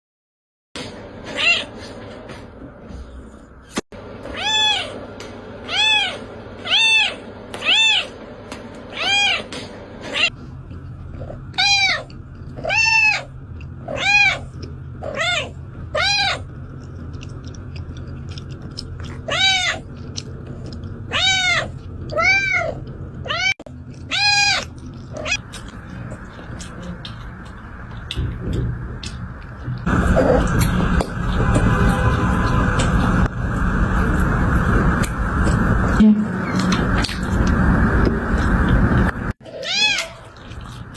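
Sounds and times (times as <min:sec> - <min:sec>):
cat meowing: 0:01.3 - 0:01.7, 0:04.3 - 0:05.0, 0:05.7 - 0:08.2, 0:08.9 - 0:10.4, 0:11.5 - 0:16.4, 0:19.2 - 0:19.9, 0:21.1 - 0:25.4, 0:39.4 - 0:40.4.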